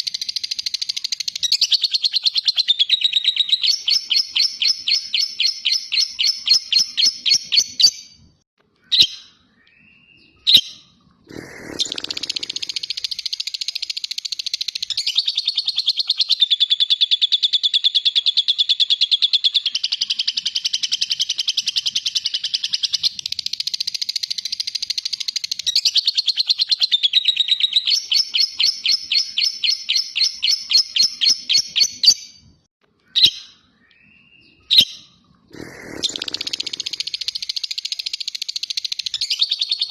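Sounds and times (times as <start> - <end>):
sharp bird chirps: 0.0 - 8.2, 8.8 - 39.9
bird fast chattering trill: 10.4 - 18.4, 34.7 - 39.9.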